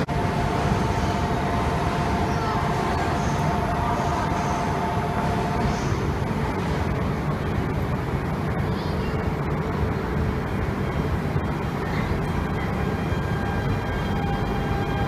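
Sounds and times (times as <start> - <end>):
train rumbling past platform: 0.0 - 15.0.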